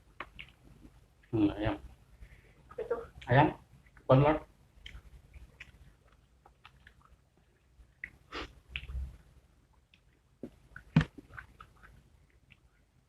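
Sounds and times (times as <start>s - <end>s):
chewing crispy fried chicken: 4.8s - 9.0s, 9.8s - 12.7s.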